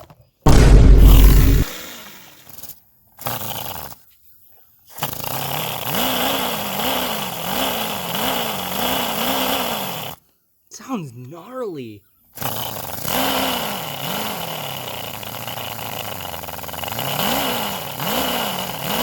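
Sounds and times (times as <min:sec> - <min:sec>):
model car engine revving: 0:04.9 - 0:10.2, 0:12.4 - 0:19.0.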